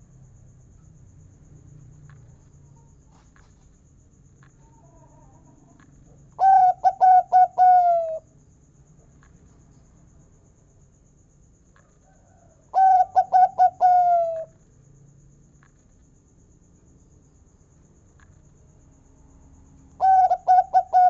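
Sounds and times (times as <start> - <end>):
dove cooing: 6.4 - 8.2, 12.7 - 14.5, 20.0 - 21.0.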